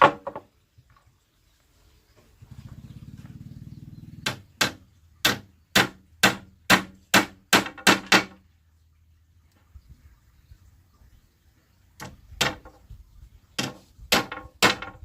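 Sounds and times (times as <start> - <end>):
hammer striking nail into wood: 4.2 - 8.4, 13.6 - 15.0.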